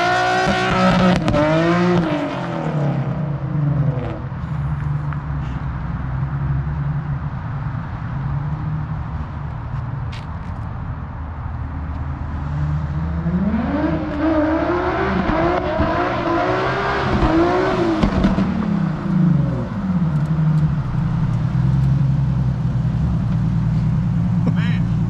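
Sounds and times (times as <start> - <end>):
car engine revving: 0.0 - 4.3, 12.3 - 25.0.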